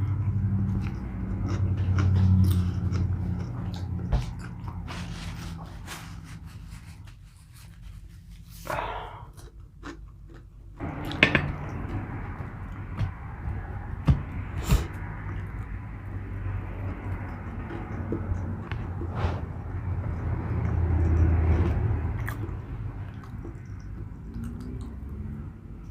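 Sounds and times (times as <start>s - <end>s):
man chewing and eating: 0.0s - 25.9s
steady low hum: 10.5s - 25.9s.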